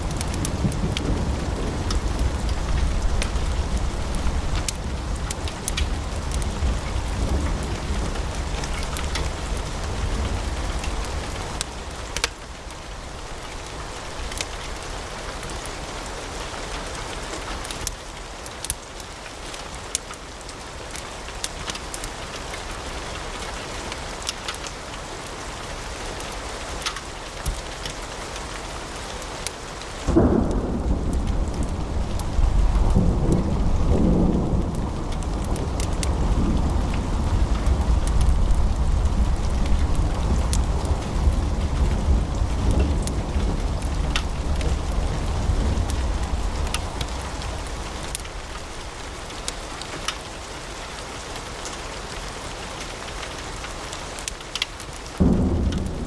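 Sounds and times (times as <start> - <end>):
wood fire crackling and popping: 0.0 - 15.9, 17.1 - 20.2, 26.1 - 28.2, 29.2 - 51.8, 52.8 - 56.0
deep rumble: 30.1 - 49.0, 55.2 - 56.0.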